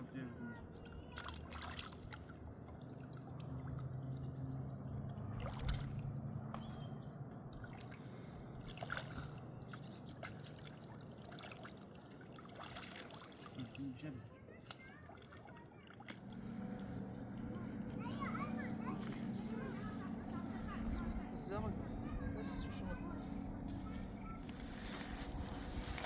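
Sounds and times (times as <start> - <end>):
river water flowing: 7.6 - 14.2
faint low hum: 15.8 - 26.0.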